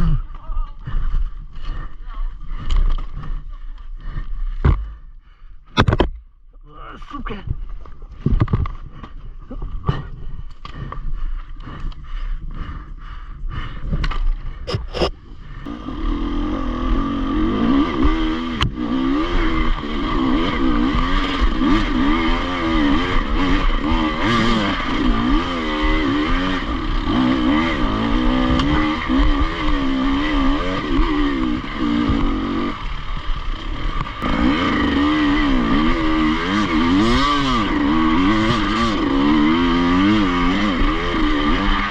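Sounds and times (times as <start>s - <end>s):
motorcycle engine revving: 14.7s - 41.9s.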